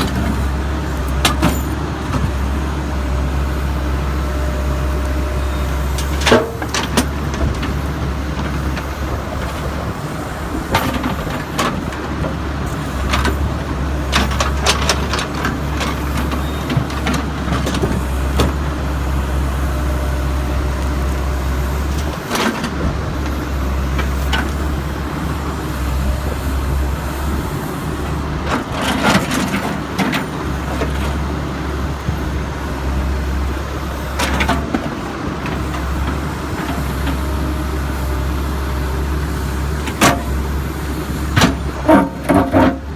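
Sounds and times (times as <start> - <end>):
backhoe diesel engine running: 0.0 - 42.9
concrete chunks and bucket clanking: 41.4 - 42.8.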